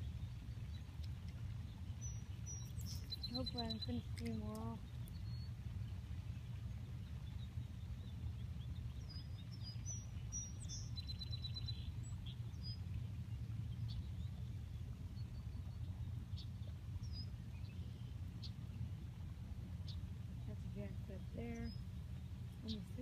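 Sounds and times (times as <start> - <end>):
small birds chirping: 0.0 - 12.9, 19.8 - 23.0.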